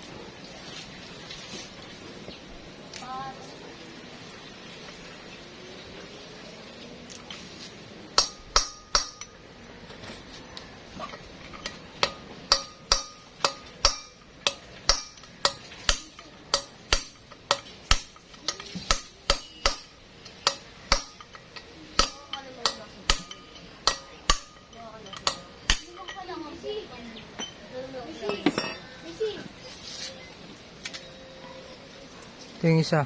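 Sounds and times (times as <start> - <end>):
hammer striking metal bolt: 8.2 - 9.4, 11.1 - 26.2.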